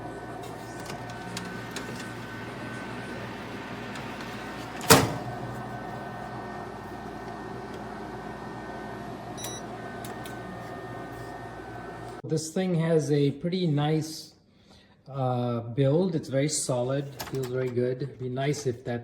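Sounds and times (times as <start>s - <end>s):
air fryer oven humming: 0.0s - 12.2s.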